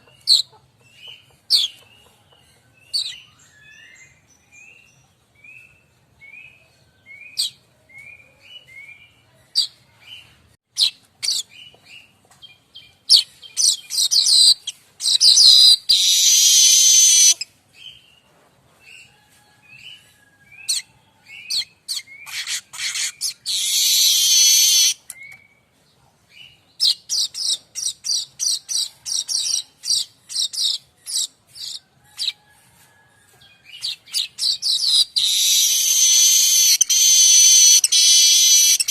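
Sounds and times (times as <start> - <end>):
bird chirping: 0.0 - 18.3, 19.8 - 32.4, 33.4 - 38.9
bird harsh buzzy trills: 15.3 - 17.4, 22.3 - 25.0, 35.2 - 38.9.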